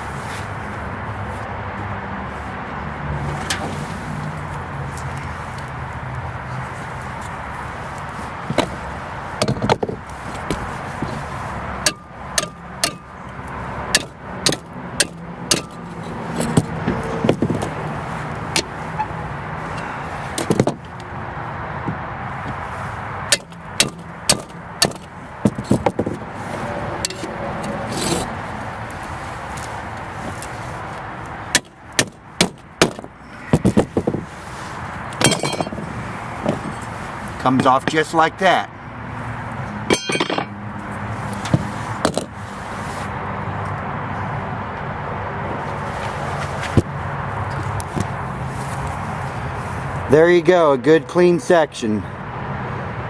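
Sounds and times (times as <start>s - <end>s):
sledgehammer striking steel: 11.8s - 13.2s, 13.9s - 16.7s, 23.3s - 26.0s, 35.2s - 35.8s, 39.9s - 40.6s
metal pieces clinking: 35.2s - 35.7s, 39.9s - 40.5s.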